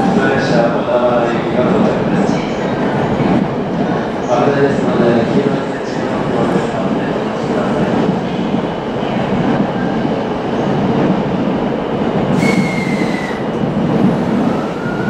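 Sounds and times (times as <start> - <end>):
train rumbling on rails: 0.0 - 15.0
wheel squeal on rail: 12.4 - 13.5.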